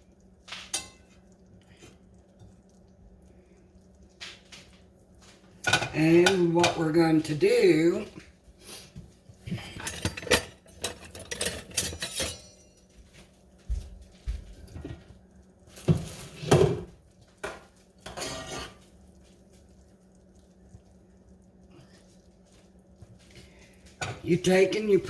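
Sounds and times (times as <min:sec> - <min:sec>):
utensils clinking against dishes: 0:09.6 - 0:12.9.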